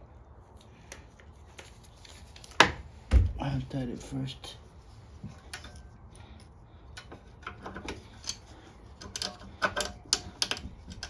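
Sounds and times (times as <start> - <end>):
hand tools clicking and tapping: 7.0 - 11.0.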